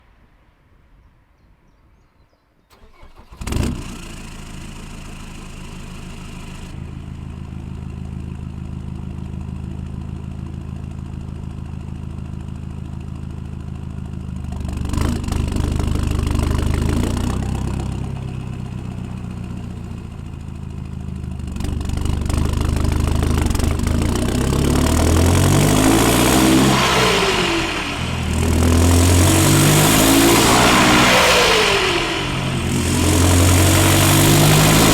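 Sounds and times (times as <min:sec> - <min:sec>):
diesel engine cranking: 0:02.7 - 0:05.4, 0:14.4 - 0:34.9
diesel engine idling and revving: 0:02.7 - 0:34.9.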